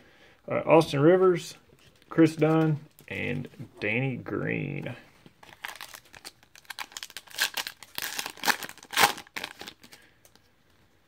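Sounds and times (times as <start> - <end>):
foil wrapper crinkling and tearing: 5.4 - 10.1.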